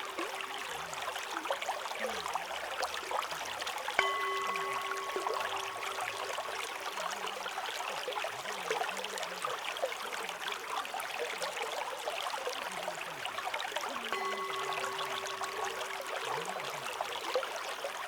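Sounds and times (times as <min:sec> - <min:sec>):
singing bowl ringing: 0:00.0 - 0:01.3, 0:04.0 - 0:08.2, 0:14.0 - 0:18.0
babbling stream: 0:00.0 - 0:18.0.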